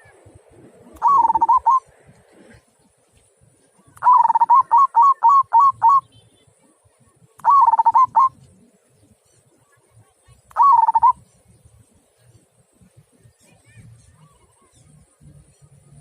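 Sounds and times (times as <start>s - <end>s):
dove cooing: 0.9s - 1.8s, 3.9s - 6.0s, 7.4s - 8.4s, 10.6s - 11.2s.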